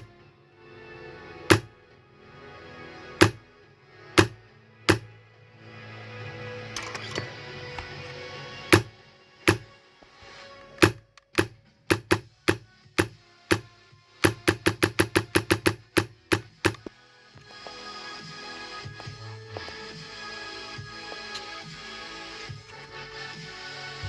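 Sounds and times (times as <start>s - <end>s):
background music: 0.0s - 24.0s
airsoft gun shots: 1.5s - 1.7s, 4.2s - 5.1s, 9.5s - 9.7s, 10.8s - 13.6s.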